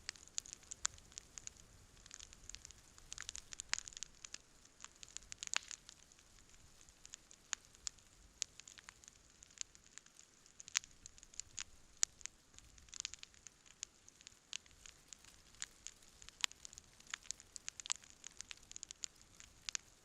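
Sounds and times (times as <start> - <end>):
campfire crackling and popping: 0.0 - 20.0
faint hiss: 0.0 - 20.0.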